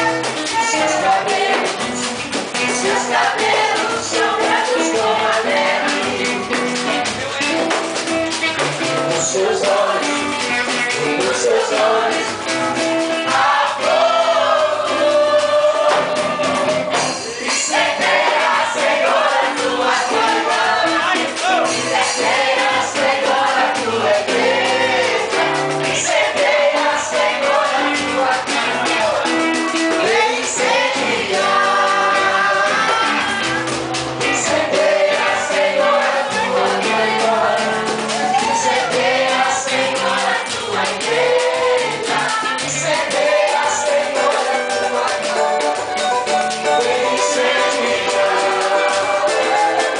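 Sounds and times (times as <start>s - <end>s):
group singing gospel song: 0.0s - 49.9s
instrumental accompaniment: 0.0s - 49.9s.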